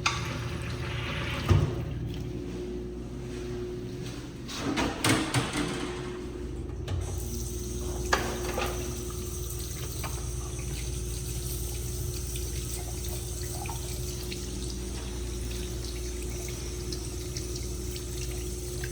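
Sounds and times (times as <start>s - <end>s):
faucet water running into sink: 0.0s - 2.2s, 7.0s - 18.9s
steady low hum: 5.9s - 18.9s.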